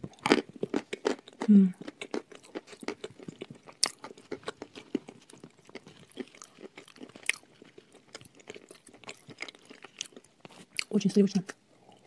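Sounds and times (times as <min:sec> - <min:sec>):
chewing and crunching: 0:00.0 - 0:11.2.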